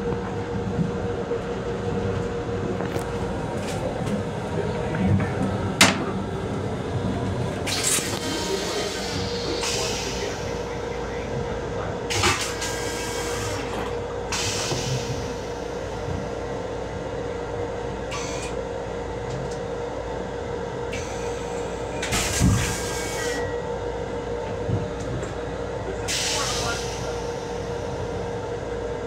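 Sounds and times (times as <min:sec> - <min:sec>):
constant hum: 0:00.0 - 0:29.0
railcar rumble: 0:00.0 - 0:29.0.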